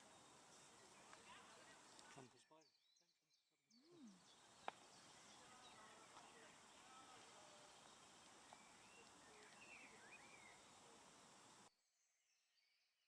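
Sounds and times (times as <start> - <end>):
low steady hiss: 0.0 - 2.4, 4.0 - 11.7
distant bird calls: 0.0 - 11.7.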